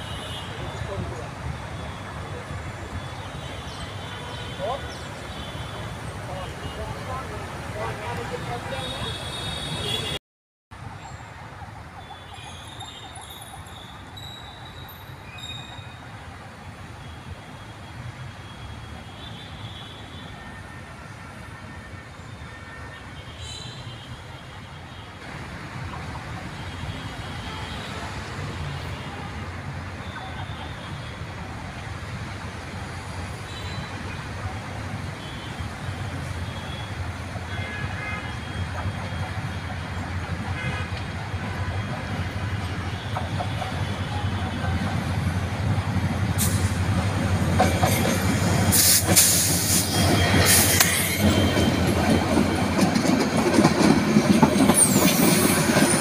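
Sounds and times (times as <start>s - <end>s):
diesel train engine rumble: 38.3s - 56.0s.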